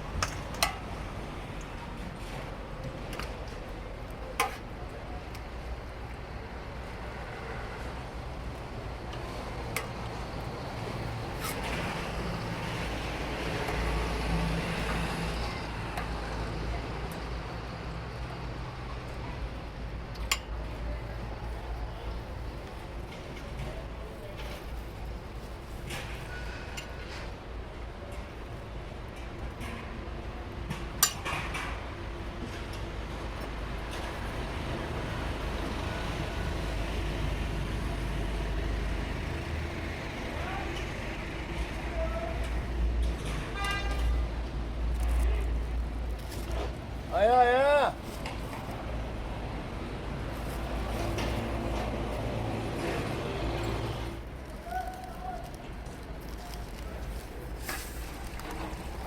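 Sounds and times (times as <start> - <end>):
traffic noise: 0.0 - 59.0.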